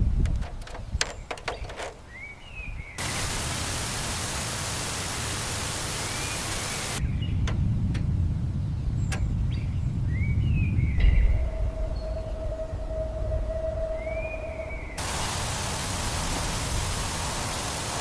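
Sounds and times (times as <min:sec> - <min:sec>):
sharp clicks: 0:00.2 - 0:02.0
steady even hiss: 0:03.0 - 0:07.0, 0:14.8 - 0:18.0.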